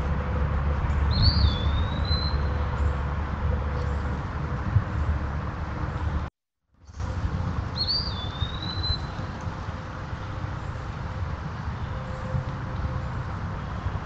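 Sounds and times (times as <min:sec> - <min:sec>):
bird whistled call: 0:01.1 - 0:02.5, 0:07.8 - 0:09.1.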